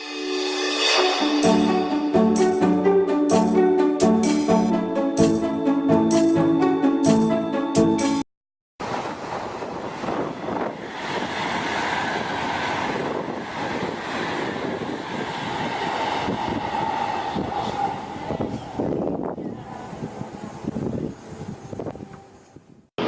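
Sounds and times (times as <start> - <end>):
high-speed train rushing: 0.0 - 7.0, 8.8 - 22.7
wind on microphone: 8.8 - 23.0.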